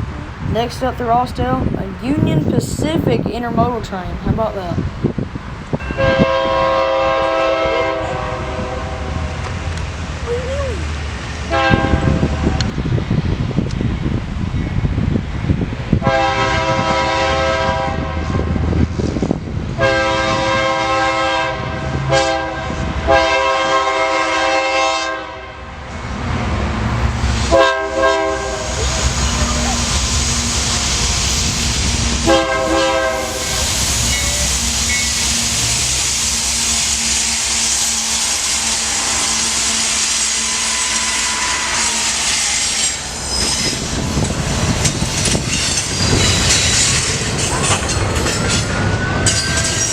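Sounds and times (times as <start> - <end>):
train cars rolling past: 0.0 - 49.9
locomotive horn blasts: 5.9 - 9.6, 11.5 - 12.7, 16.0 - 18.4, 19.8 - 25.6, 27.0 - 35.8, 36.4 - 43.0
wheels clacking over rail joints: 26.6 - 49.9.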